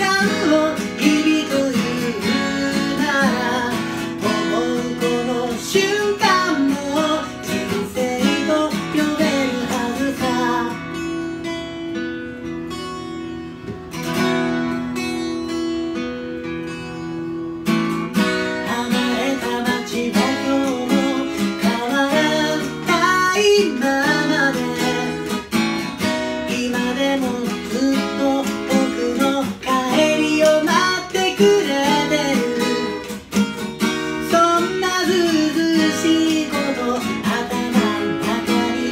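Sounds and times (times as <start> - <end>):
person singing: 0.0 - 11.1, 18.4 - 38.9
strummed acoustic guitar: 0.0 - 38.9.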